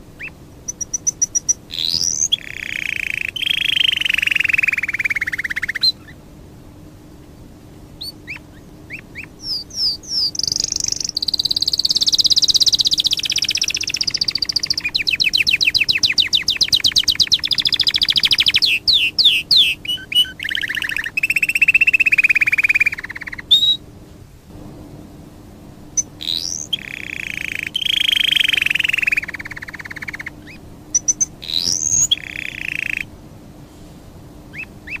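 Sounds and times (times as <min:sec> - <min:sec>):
bird singing buzzy trills: 0:00.0 - 0:24.0, 0:25.4 - 0:35.0.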